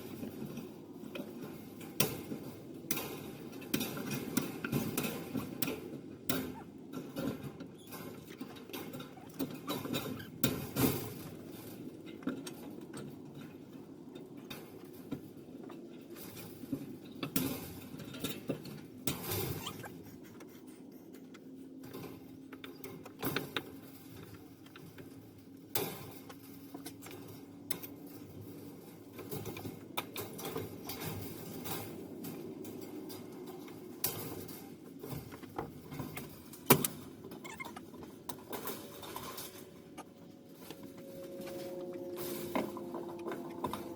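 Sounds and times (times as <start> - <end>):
faint steady hum: 0.0 - 43.9
scratching: 19.1 - 22.9.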